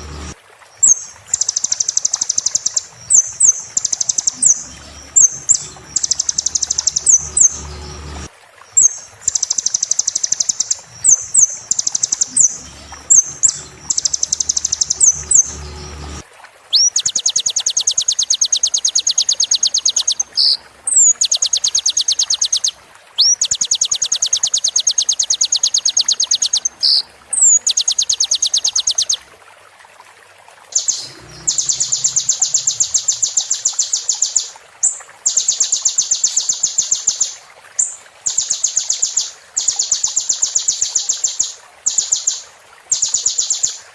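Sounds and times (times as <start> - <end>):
bird singing high trills: 0.0 - 16.2, 30.8 - 34.5.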